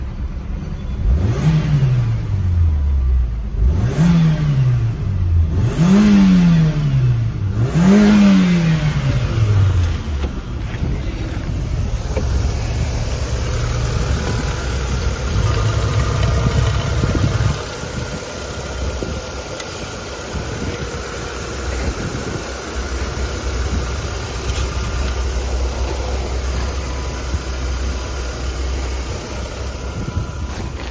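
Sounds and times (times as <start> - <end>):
car engine revving: 1.0 - 2.8, 3.4 - 30.9
car engine idling: 7.2 - 30.9.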